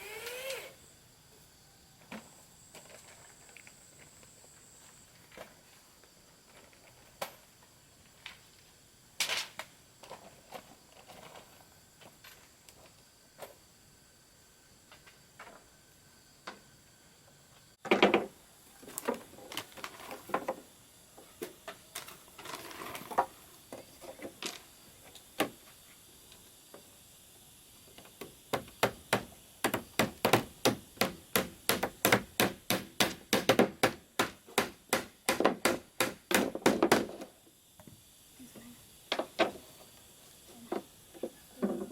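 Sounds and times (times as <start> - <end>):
hammer striking wood: 28.5 - 37.2.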